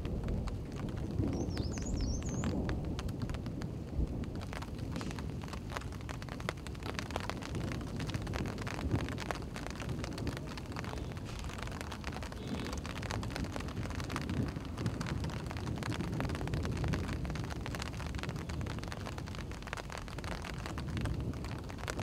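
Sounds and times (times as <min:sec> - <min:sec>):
light rain pattering: 0:00.0 - 0:22.0
low wind rumble on microphone: 0:00.0 - 0:22.0.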